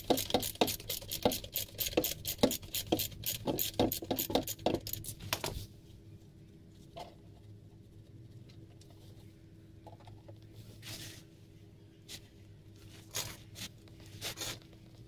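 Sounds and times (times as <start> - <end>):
wrench clicking: 0.0 - 5.1.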